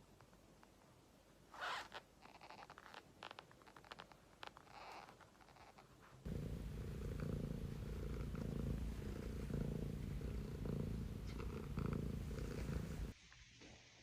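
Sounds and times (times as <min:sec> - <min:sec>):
cat purring: 0:04.7 - 0:13.2.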